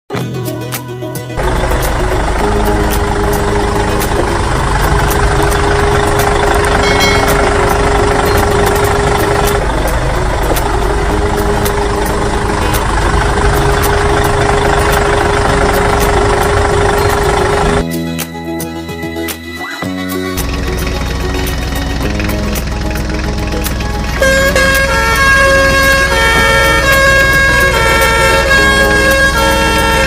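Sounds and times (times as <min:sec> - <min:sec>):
motor humming: 0:01.4 - 0:17.8.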